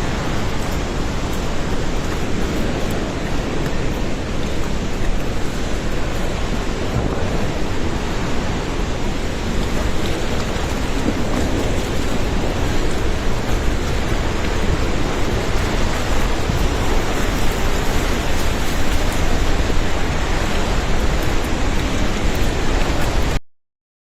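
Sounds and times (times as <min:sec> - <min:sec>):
floodwater rushing: 0:00.0 - 0:23.4.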